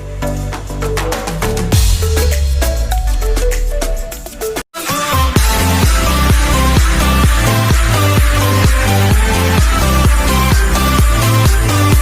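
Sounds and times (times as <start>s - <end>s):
electronic dance music: 0.0s - 12.0s
kick drum beat: 5.4s - 12.0s.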